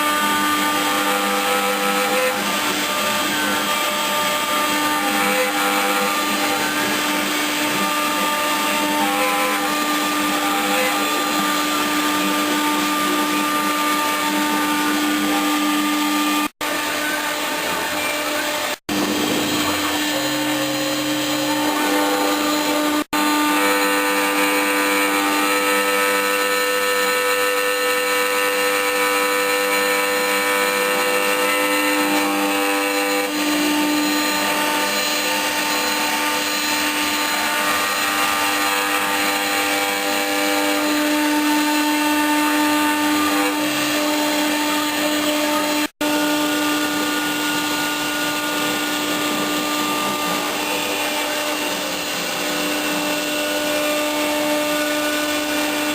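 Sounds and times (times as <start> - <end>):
router motor whine: 0.0 - 55.9.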